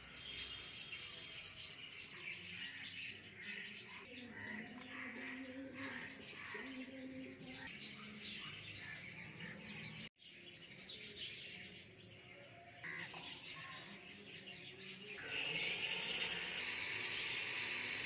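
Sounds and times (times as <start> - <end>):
birds chirping and calling: 0.0 - 18.0.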